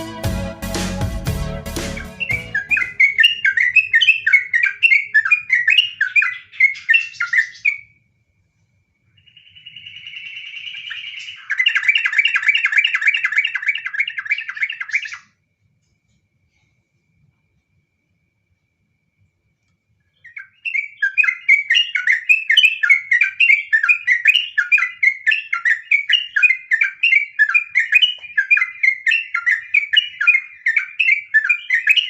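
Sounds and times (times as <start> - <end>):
electronic intro music: 0.0 - 3.7
bird singing bubbling phrases: 2.0 - 7.9, 9.2 - 15.3, 20.2 - 32.0.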